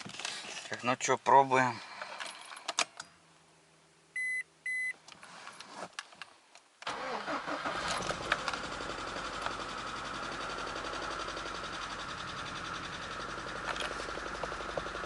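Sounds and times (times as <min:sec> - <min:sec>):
car beeps: 0:04.2 - 0:05.0
car engine cranking and running: 0:06.9 - 0:15.0.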